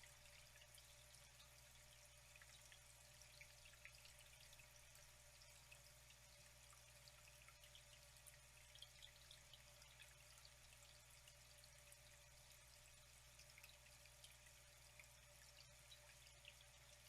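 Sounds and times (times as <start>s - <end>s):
water trickling and dripping: 0.0s - 17.0s.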